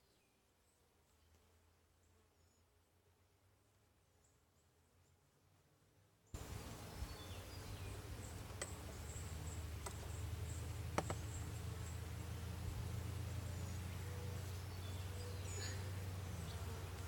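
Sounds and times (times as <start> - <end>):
honeybees humming: 6.4 - 17.0
sharp clicks: 9.8 - 10.0.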